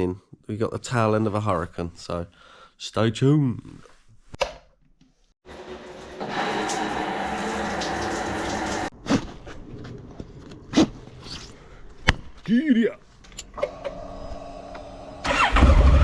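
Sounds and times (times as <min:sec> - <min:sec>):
water running: 0:05.4 - 0:08.9.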